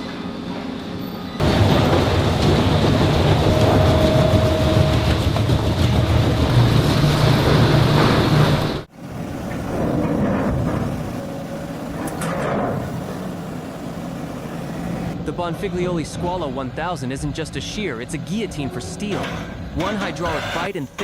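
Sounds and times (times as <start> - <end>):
industrial shredding machine grinding: 1.4 - 15.2.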